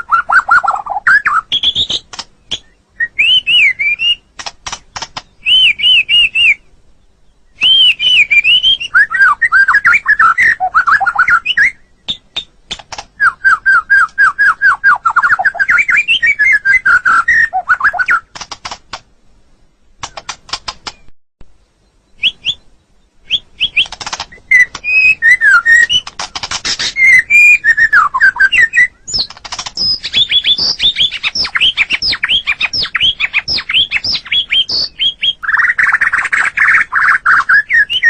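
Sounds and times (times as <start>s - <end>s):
bird singing whistled notes: 0.0s - 4.3s, 5.2s - 12.6s, 13.2s - 18.3s, 21.8s - 38.0s
rapid dry clicks: 4.4s - 5.3s, 18.3s - 19.1s, 20.0s - 21.1s, 23.8s - 24.9s, 26.0s - 27.0s, 29.1s - 32.1s.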